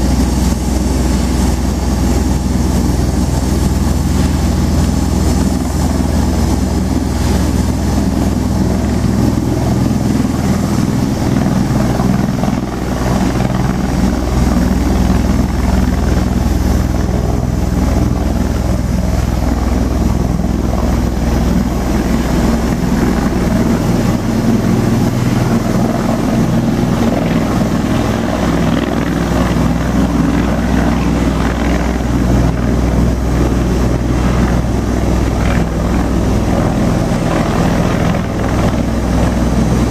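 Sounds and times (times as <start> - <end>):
aircraft rotor drone: 0.0 - 39.9
low hum: 0.0 - 39.9.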